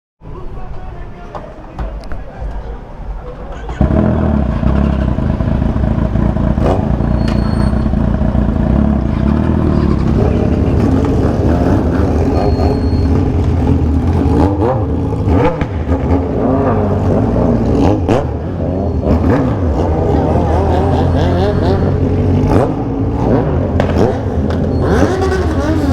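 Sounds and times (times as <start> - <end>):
motorcycle engines running loudly: 1.7 - 25.9
sharp exhaust cracks: 2.0 - 18.4.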